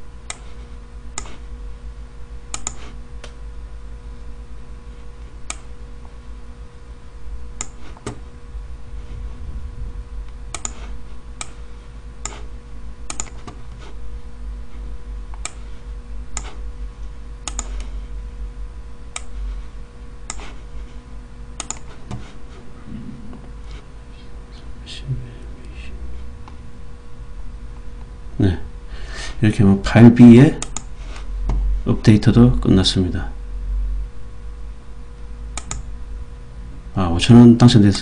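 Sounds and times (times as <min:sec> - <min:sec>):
low hum: 0:00.0 - 0:38.0
mouse and keyboard clicks: 0:02.5 - 0:02.8, 0:10.6 - 0:10.8, 0:13.1 - 0:13.6, 0:17.5 - 0:17.9, 0:21.6 - 0:21.9.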